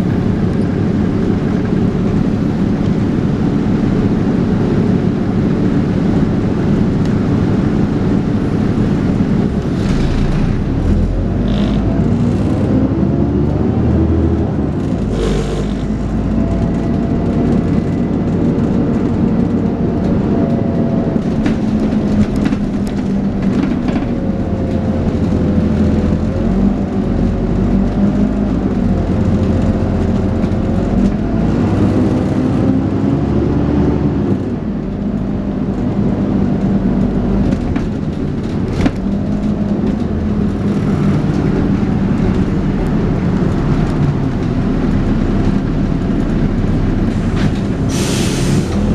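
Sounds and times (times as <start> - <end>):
bus engine whining: 0.0 - 48.9
rattles and clicks: 14.7 - 32.4, 34.4 - 47.9.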